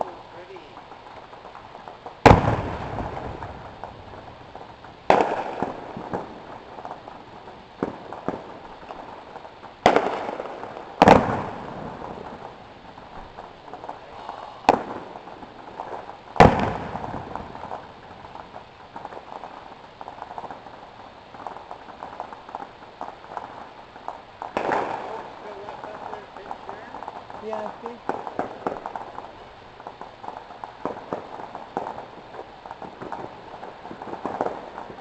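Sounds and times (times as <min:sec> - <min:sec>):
fireworks booming: 0:00.0 - 0:35.0
fireworks popping and crackling: 0:00.0 - 0:35.0.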